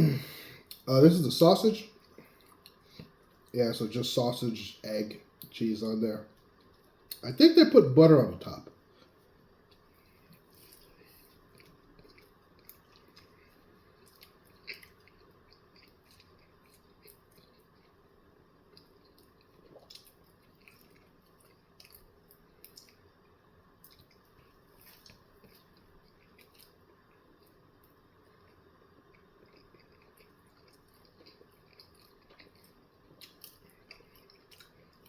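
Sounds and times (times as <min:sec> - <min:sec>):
person chewing wetly: 0:02.0 - 0:03.5, 0:09.0 - 0:35.0.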